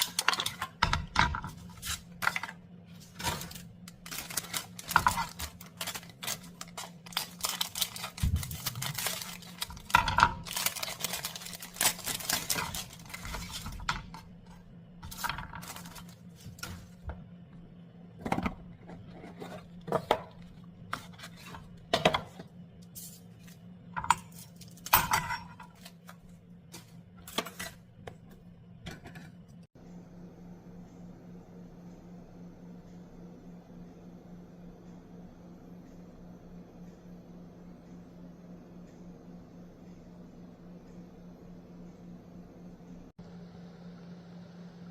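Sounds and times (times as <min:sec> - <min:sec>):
steady low hum: 0:00.0 - 0:44.9
dishes and utensils clinking: 0:24.0 - 0:25.9.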